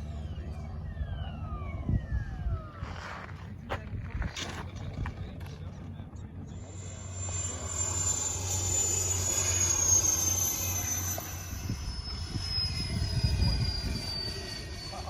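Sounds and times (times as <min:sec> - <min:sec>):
model airplane motor whine: 0:00.0 - 0:03.6, 0:06.3 - 0:15.0
wind gusts on microphone: 0:11.4 - 0:14.6.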